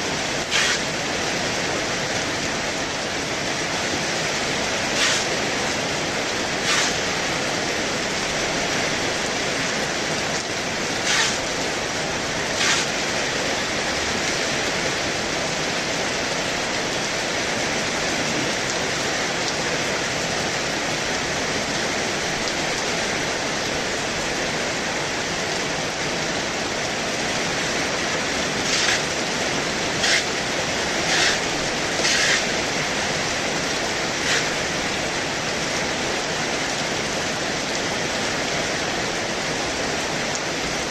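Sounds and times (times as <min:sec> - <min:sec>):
heavy rain hiss: 0:00.0 - 0:40.9
raindrops splatting close by: 0:00.1 - 0:40.9.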